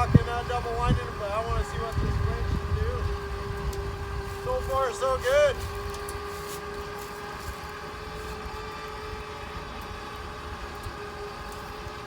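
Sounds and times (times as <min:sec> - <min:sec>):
electric winch whining: 0:00.0 - 0:12.0.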